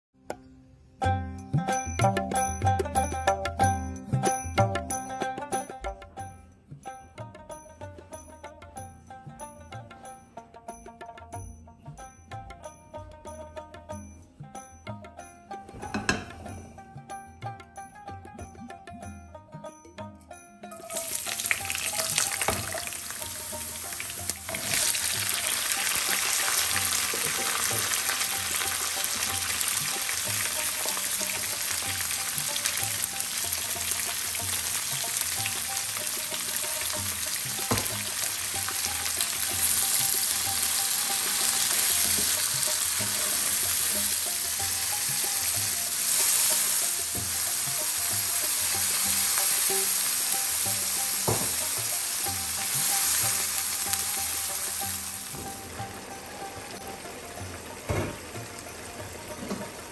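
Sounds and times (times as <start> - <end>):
onions sizzling in hot oil: 20.8 - 59.9
water poured into hot pan: 20.8 - 59.9.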